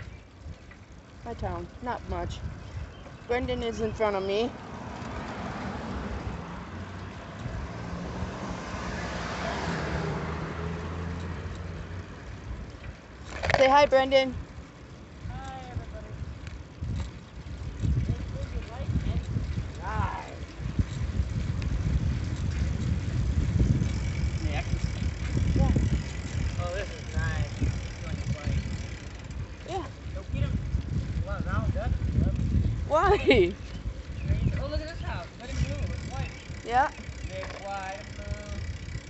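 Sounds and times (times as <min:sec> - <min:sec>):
low engine hum of traffic: 0:00.0 - 0:39.0
wind buffeting microphone: 0:00.0 - 0:39.0
car passing: 0:03.5 - 0:14.9, 0:21.6 - 0:29.4.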